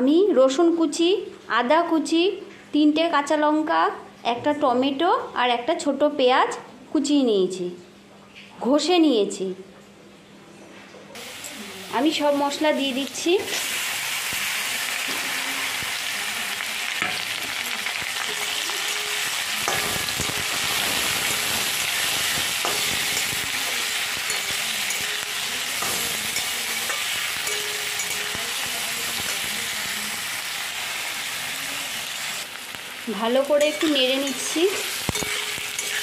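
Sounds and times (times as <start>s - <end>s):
vegetables sizzling in hot oil: 11.2s - 36.0s
metal spatula scraping pan: 18.2s - 29.6s, 33.6s - 36.0s.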